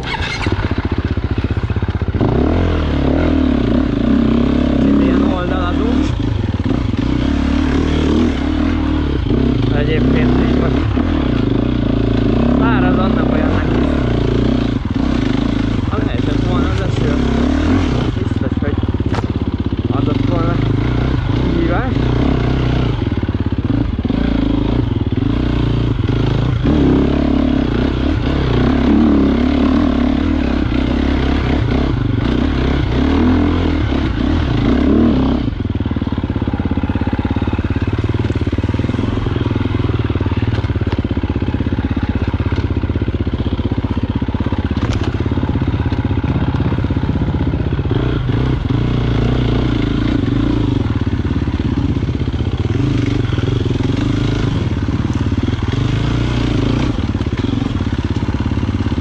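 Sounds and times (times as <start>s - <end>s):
motorcycle engine revving: 0.0s - 59.0s
clatter: 17.8s - 20.5s, 36.3s - 48.0s.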